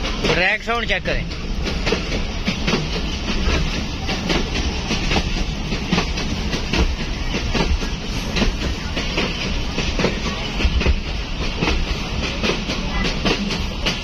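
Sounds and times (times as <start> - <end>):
train low rumble: 0.0 - 14.0
wheels clacking over rail joints: 0.0 - 14.0.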